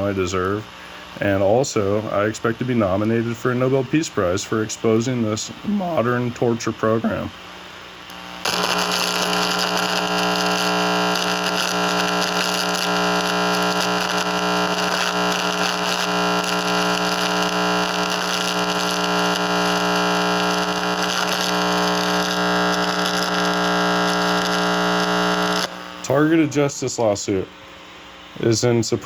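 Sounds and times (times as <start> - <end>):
steady hum tones: 0.0 - 29.0
electronic static buzz: 8.1 - 26.7.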